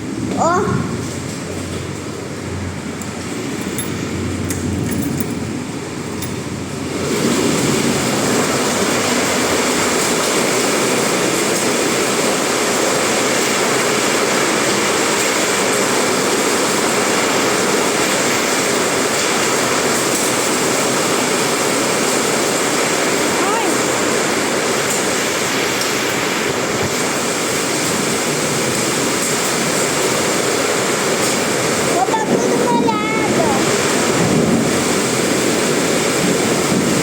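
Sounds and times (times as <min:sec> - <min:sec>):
heavy rain pouring: 0:00.0 - 0:37.0.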